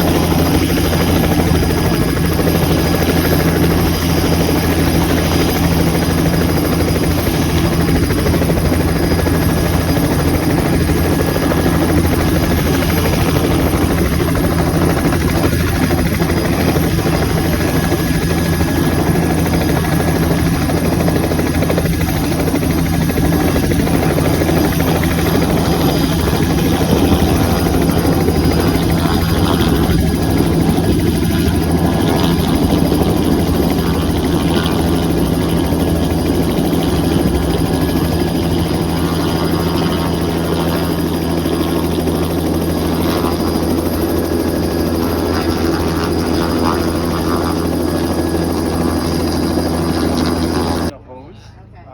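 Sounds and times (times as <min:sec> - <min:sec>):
engine droning steadily: 0:00.0 - 0:51.9.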